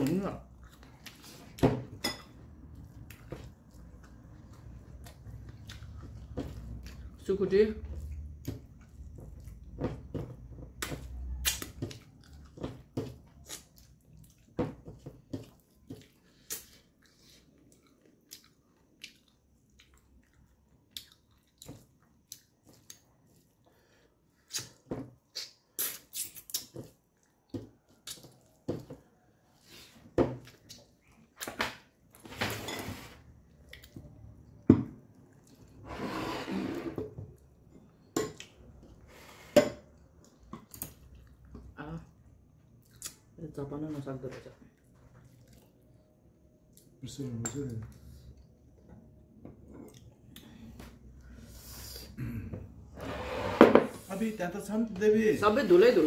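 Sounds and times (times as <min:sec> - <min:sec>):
wet chewing and lip smacks: 0:15.4 - 0:23.6, 0:42.6 - 0:43.3, 0:44.8 - 0:46.0.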